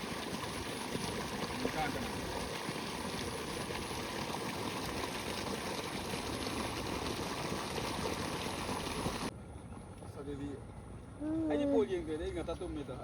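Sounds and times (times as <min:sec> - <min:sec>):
water rushing in a stream: 0:00.0 - 0:10.0.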